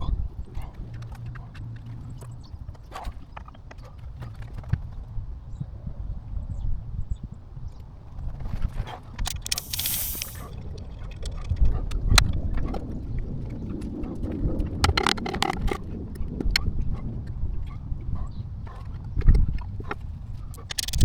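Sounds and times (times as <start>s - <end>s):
quick clicks: 9.2s - 10.6s, 20.5s - 21.0s
short hiss: 9.3s - 10.5s.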